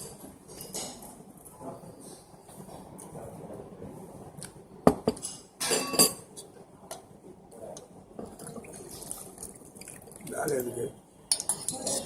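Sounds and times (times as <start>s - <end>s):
cutlery clinking on a plate: 5.1s - 6.3s.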